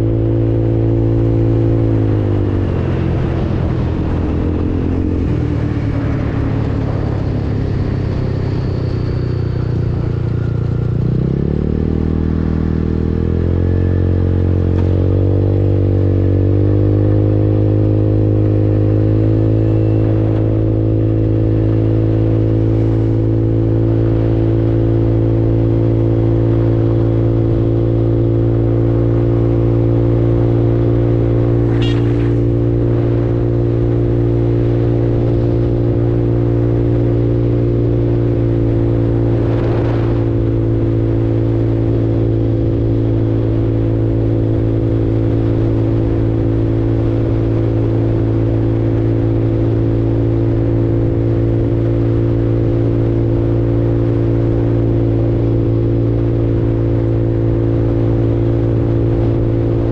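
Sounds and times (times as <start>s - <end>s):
scooter engine accelerating: 0.0s - 59.9s.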